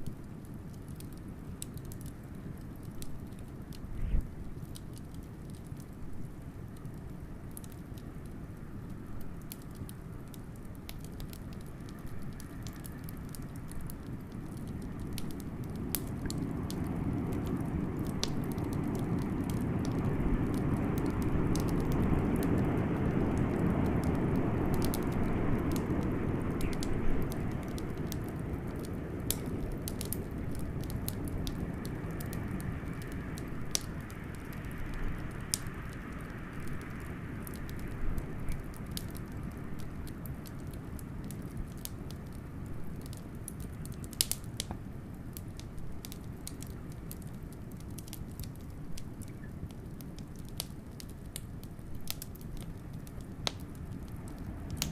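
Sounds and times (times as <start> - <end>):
wood fire crackling and popping: 0.0 - 54.9
blizzard wind: 0.4 - 44.2.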